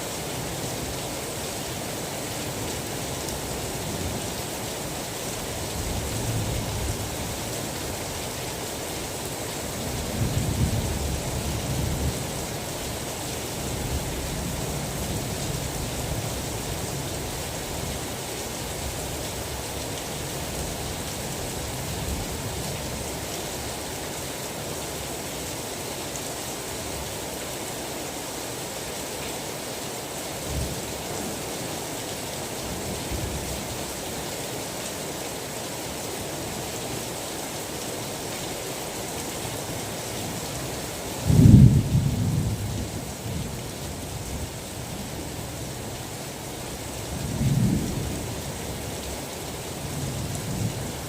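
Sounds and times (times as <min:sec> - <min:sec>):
heavy rain: 0:00.0 - 0:51.0
low thunder rumbles: 0:41.3 - 0:43.4.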